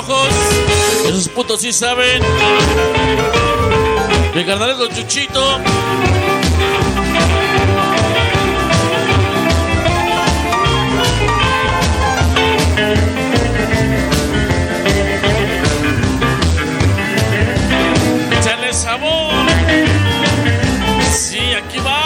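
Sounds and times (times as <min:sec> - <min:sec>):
rock music over sound system: 0:00.0 - 0:22.0.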